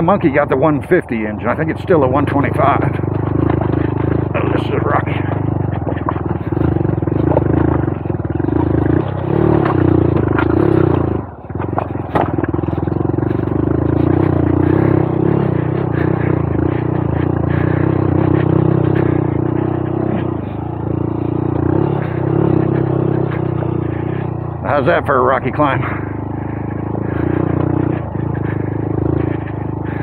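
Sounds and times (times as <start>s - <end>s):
motorcycle engine climbing: 0.0s - 30.0s
rocks clattering under tyres: 5.3s - 14.2s.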